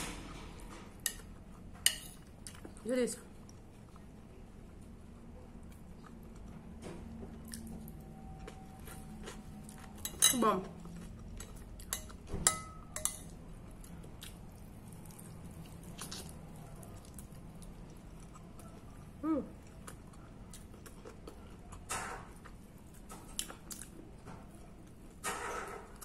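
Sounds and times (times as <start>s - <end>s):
fork clinking on ceramic plate: 11.9s - 13.3s.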